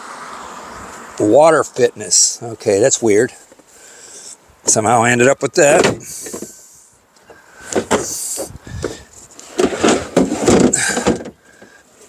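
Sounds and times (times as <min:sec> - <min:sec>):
knocks and clunks: 0:05.6 - 0:06.6, 0:07.3 - 0:11.8
items rustling: 0:07.2 - 0:11.8.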